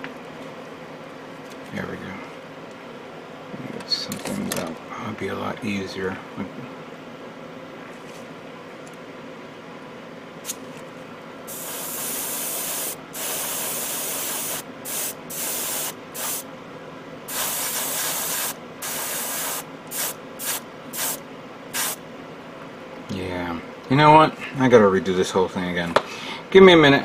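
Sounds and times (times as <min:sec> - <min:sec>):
air compressor hum: 0:09.5 - 0:22.5
airbrush spraying in hissing bursts: 0:11.5 - 0:16.5, 0:17.3 - 0:22.0.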